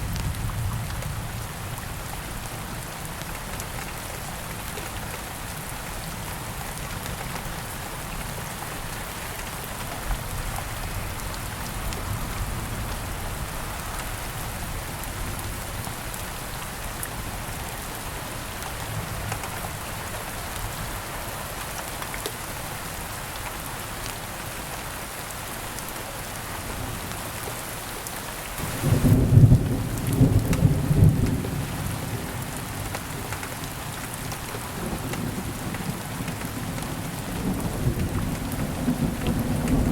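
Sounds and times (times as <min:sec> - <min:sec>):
steady rain hissing: 0:00.0 - 0:39.9
thunder rumbling: 0:28.6 - 0:32.8, 0:34.8 - 0:39.9.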